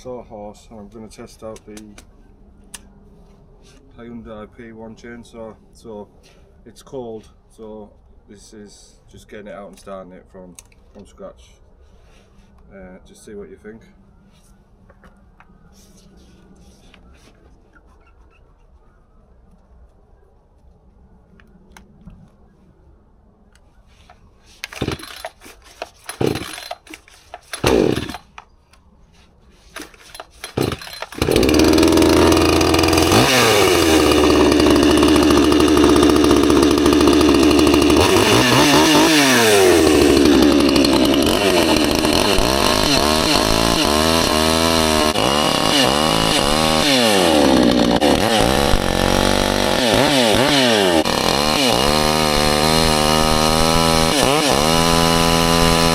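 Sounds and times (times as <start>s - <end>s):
chainsaw engine revving: 24.6s - 28.4s, 29.8s - 55.9s
starter cord pulls: 24.6s - 28.5s, 29.7s - 43.5s.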